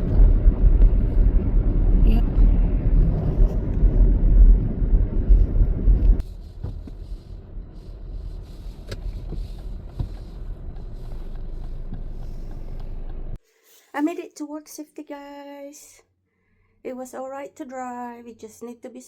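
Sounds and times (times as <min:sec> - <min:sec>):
car interior road and engine rumble: 0:00.0 - 0:13.4.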